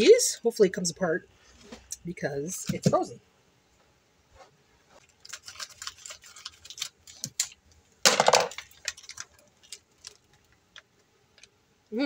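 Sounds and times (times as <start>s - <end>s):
frozen cheese wrapping crackling: 4.9s - 11.6s.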